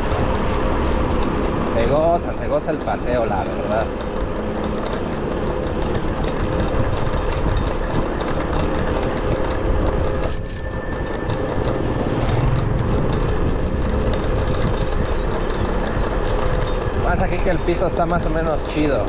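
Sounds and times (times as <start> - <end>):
wind and road noise: 0.0 - 19.0
bicycle bell ding: 10.2 - 12.3.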